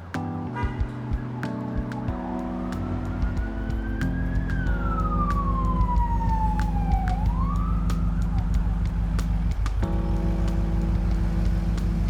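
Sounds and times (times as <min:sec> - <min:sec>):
background music with held chords: 0:00.0 - 0:12.0
siren wailing: 0:00.5 - 0:10.0.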